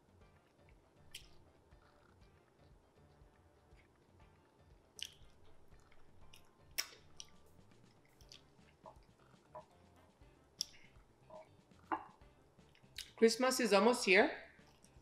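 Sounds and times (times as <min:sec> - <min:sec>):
faint music: 0:00.0 - 0:15.0
wet mouth eating sounds: 0:00.6 - 0:04.0, 0:04.9 - 0:09.9, 0:10.6 - 0:13.2.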